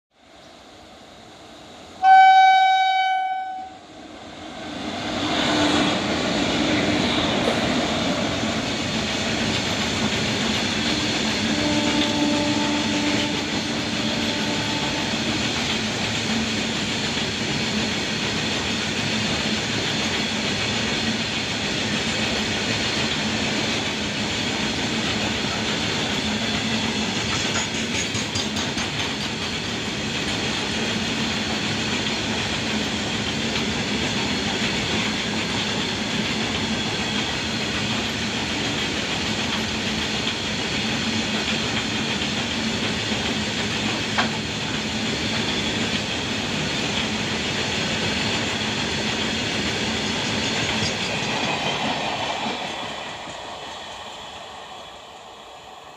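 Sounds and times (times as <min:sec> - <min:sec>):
freight train rumbling past: 0:00.2 - 0:55.9
locomotive horn blast: 0:02.0 - 0:03.8, 0:11.4 - 0:15.4.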